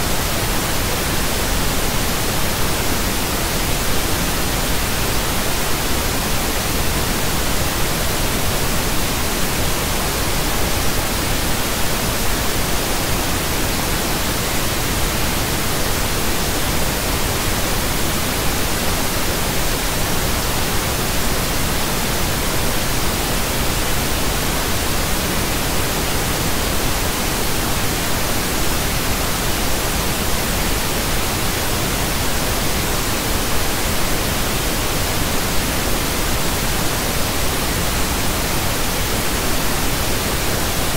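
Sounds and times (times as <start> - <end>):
pink noise hiss: 0.0 - 40.9.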